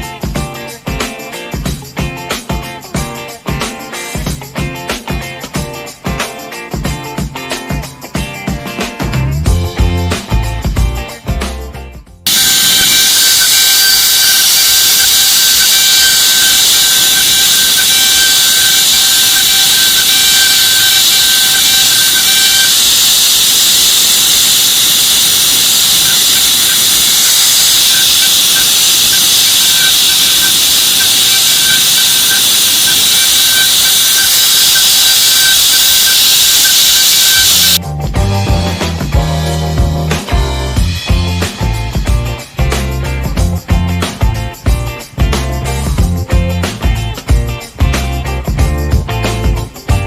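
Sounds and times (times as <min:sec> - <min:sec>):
loud hiss: 0:12.3 - 0:37.8
milling machine spindle whine: 0:12.3 - 0:37.8.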